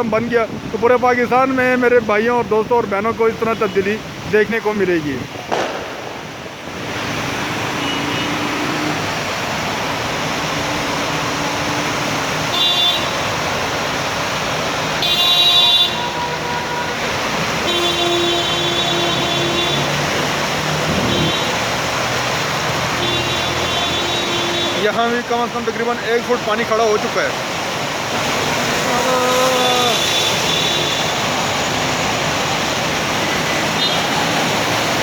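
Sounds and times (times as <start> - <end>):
road traffic noise: 0.0 - 35.0
vehicle horns honking: 7.7 - 9.0, 12.4 - 13.3, 15.0 - 20.1, 20.9 - 21.6, 23.0 - 25.0, 29.4 - 31.3, 33.7 - 34.3.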